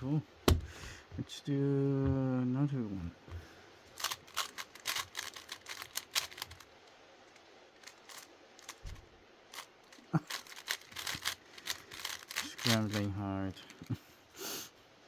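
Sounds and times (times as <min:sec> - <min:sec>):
puzzle cube layers clicking: 0:04.0 - 0:06.6, 0:10.2 - 0:13.1.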